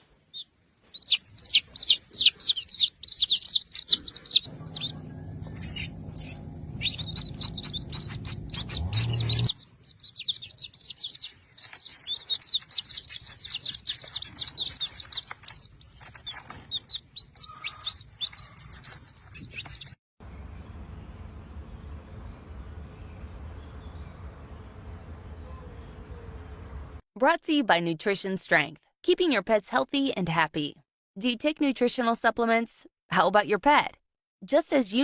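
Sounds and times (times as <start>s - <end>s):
small birds chirping: 0.0s - 20.7s
low steady rumble: 4.5s - 9.6s, 20.2s - 27.0s
low steady hum: 20.2s - 27.0s.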